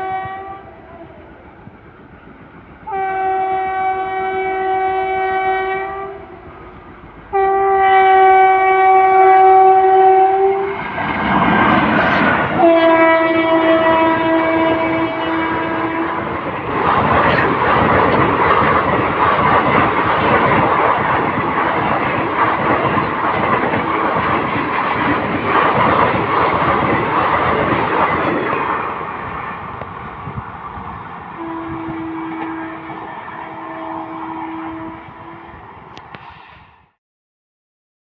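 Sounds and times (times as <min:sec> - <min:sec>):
train horn: 0:00.0 - 0:01.4, 0:02.8 - 0:10.8, 0:12.0 - 0:16.6, 0:31.4 - 0:36.1
electric train passing at speed: 0:00.0 - 0:37.0
wheels clattering over rail joints: 0:16.3 - 0:30.4.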